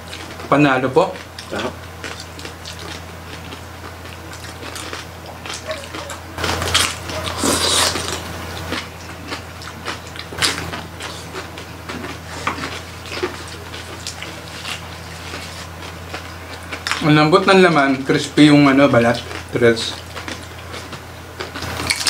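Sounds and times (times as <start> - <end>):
chewing crispy skin: 0.0 - 22.0
steady low hum: 0.0 - 22.0
wet mouth sounds: 1.3 - 17.0.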